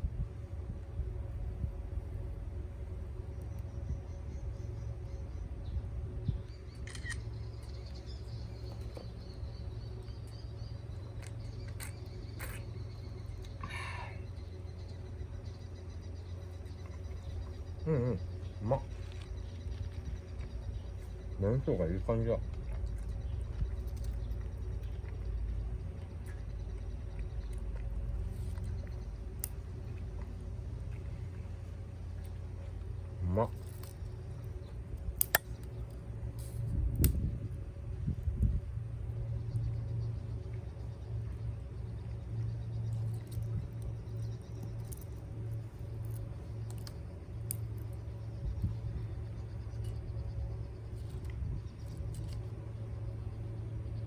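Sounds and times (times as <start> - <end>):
steady low rumble: 0.0 - 54.0
faint high chirping: 3.2 - 27.6
sharp clicks: 6.7 - 7.3, 35.2 - 35.7.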